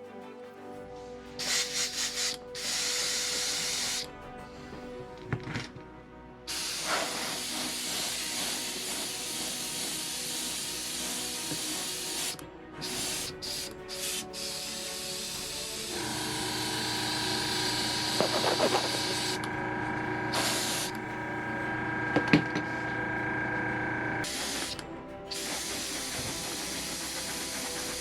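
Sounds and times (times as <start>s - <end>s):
airbrush spraying hiss: 1.4s - 4.1s, 6.5s - 19.4s, 20.3s - 21.0s, 24.2s - 28.0s.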